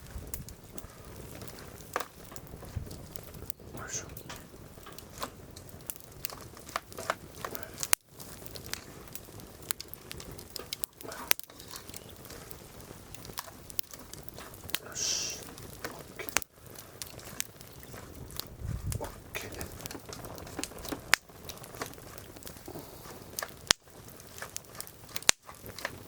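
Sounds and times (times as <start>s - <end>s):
campfire crackling and popping: 0.0s - 26.0s
brief hiss: 14.9s - 15.4s.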